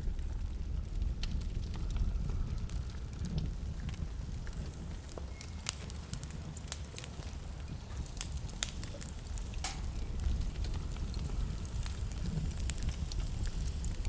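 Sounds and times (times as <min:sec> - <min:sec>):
fire rumbling in fireplace: 0:00.0 - 0:14.0
logs crackling and popping: 0:00.0 - 0:14.0.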